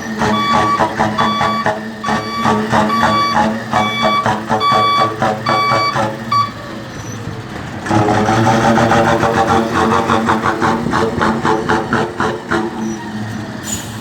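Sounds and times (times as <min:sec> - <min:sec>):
whistling exhaust toots: 0:00.0 - 0:07.4
truck engine running: 0:00.0 - 0:14.0.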